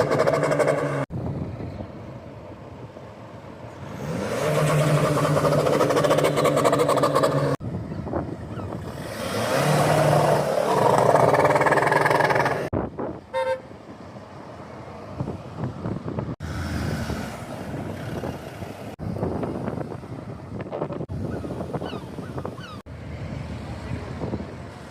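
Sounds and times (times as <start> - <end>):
car engines passing: 0.0 - 24.9
car horn toot: 13.3 - 13.7.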